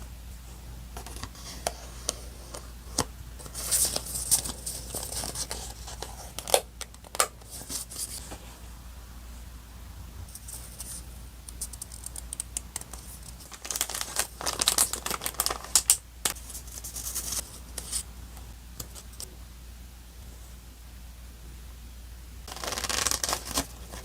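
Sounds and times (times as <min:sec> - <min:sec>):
paper rustling and crinkling: 0:03.4 - 0:06.6, 0:12.8 - 0:18.0, 0:22.5 - 0:24.0.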